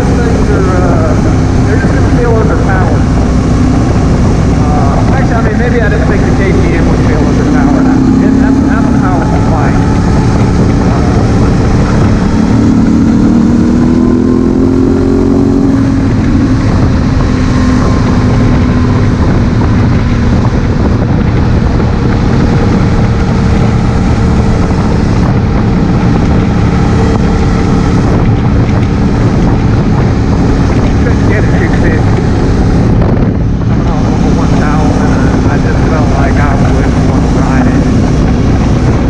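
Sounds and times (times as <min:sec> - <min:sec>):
motorcycle engine accelerating: 0:00.0 - 0:39.0
wind rush on microphone: 0:00.0 - 0:39.0.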